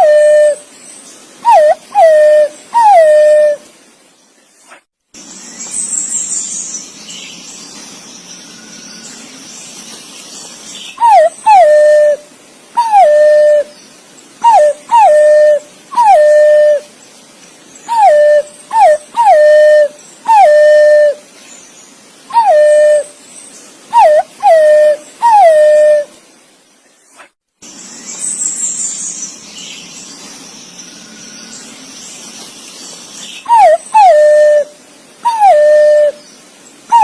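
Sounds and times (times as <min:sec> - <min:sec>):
pigeon whistled calls: 0:00.0 - 0:00.6, 0:01.4 - 0:03.6, 0:11.0 - 0:12.2, 0:12.8 - 0:13.7, 0:14.4 - 0:16.8, 0:17.9 - 0:21.2, 0:22.3 - 0:23.1, 0:23.9 - 0:26.1, 0:33.4 - 0:36.2.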